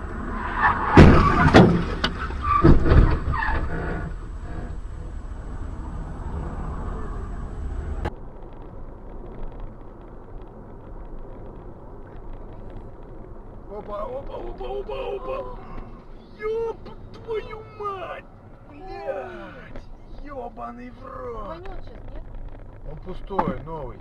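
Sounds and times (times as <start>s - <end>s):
road vehicle running: 0.0s - 24.0s
loud knocks and bangs: 0.8s - 3.6s.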